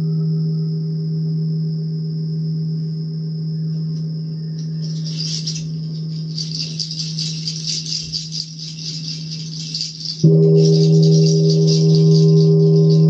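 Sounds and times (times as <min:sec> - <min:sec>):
singing bowl ringing: 0:03.4 - 0:13.0
hand rattle shaken: 0:04.6 - 0:13.0.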